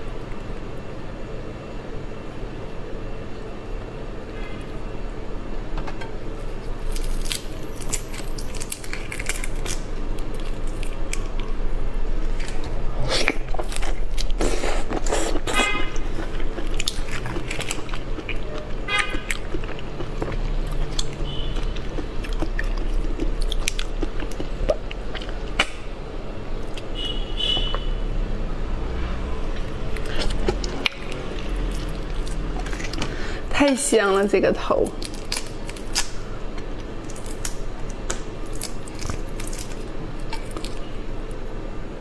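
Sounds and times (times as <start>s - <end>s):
steady low hum: 0.0s - 42.0s
chewing and biting: 12.3s - 25.8s, 29.5s - 33.2s, 35.0s - 40.9s.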